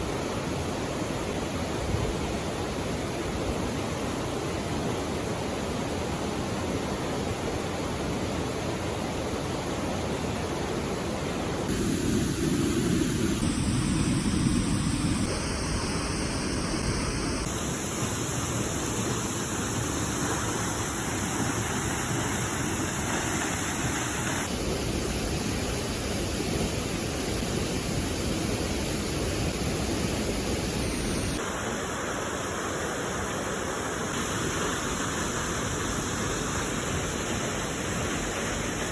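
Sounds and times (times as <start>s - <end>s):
waterfall rushing: 14.1s - 38.9s.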